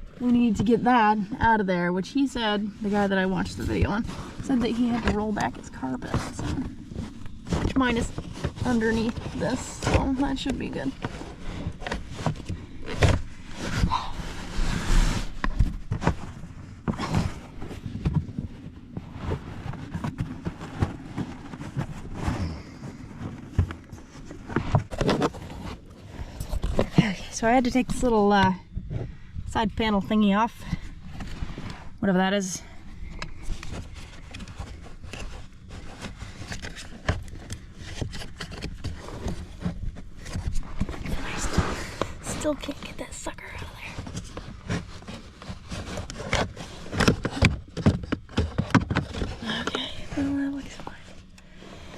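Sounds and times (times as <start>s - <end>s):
scraping rustle: 2.4s - 51.9s
knocks and scrapes on plastic trim: 43.9s - 51.1s.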